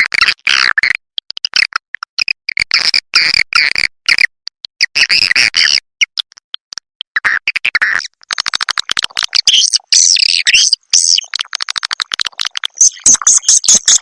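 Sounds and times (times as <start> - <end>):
recorded swiftlet twittering: 8.3 - 14.0.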